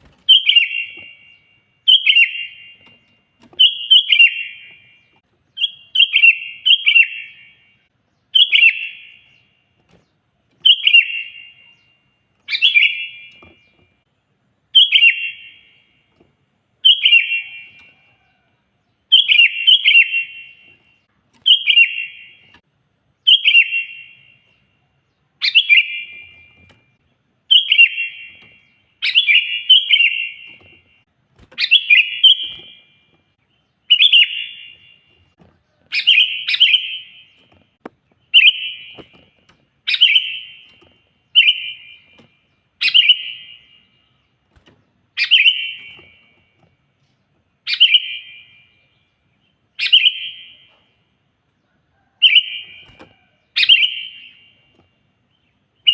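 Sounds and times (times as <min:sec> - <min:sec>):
bird chattering song: 0:00.2 - 0:02.9, 0:03.6 - 0:09.5, 0:10.6 - 0:13.8, 0:14.7 - 0:15.8, 0:16.8 - 0:18.3, 0:19.1 - 0:22.5, 0:23.2 - 0:24.4, 0:25.3 - 0:26.6, 0:27.5 - 0:31.0, 0:31.6 - 0:32.9, 0:33.6 - 0:37.4, 0:38.2 - 0:39.2, 0:39.8 - 0:42.1, 0:42.8 - 0:44.2, 0:45.2 - 0:46.2, 0:47.6 - 0:49.2, 0:49.8 - 0:50.9, 0:52.0 - 0:54.7.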